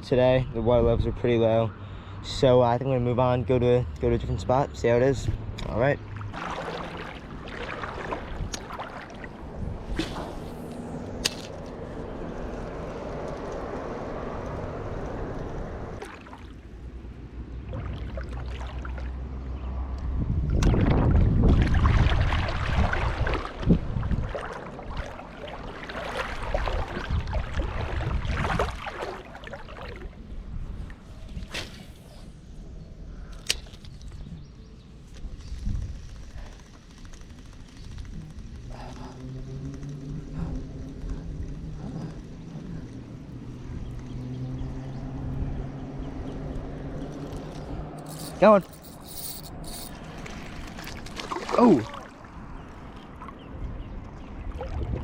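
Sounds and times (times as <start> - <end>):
footsteps wading through water: 6.1 - 10.4, 17.6 - 19.3, 21.5 - 30.2, 48.0 - 55.0
wind rumble on microphone: 7.3 - 16.0, 19.1 - 29.2, 29.9 - 33.2, 33.8 - 50.0, 52.3 - 55.0.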